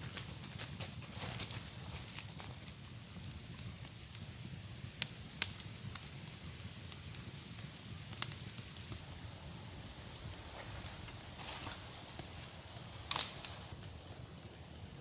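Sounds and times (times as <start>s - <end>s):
low steady rumble: 8.9s - 13.8s
sharp snaps or pops: 11.2s - 13.8s.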